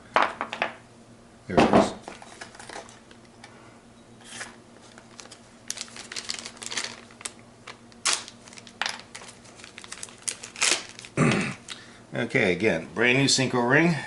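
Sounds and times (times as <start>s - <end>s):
plastic packaging crinkling: 4.3s - 11.8s.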